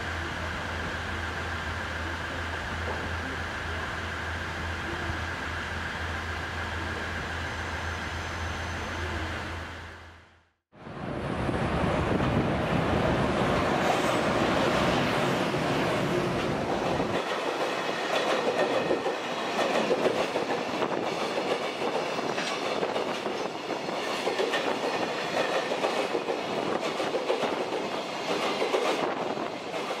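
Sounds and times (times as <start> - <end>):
freight train wheels clacking: 13.5 - 30.0.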